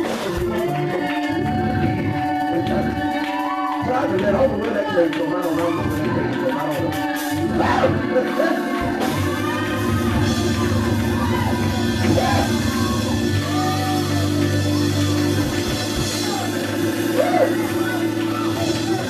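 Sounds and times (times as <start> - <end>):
church praise music: 0.0 - 19.0
voices shouting and singing: 0.0 - 19.0.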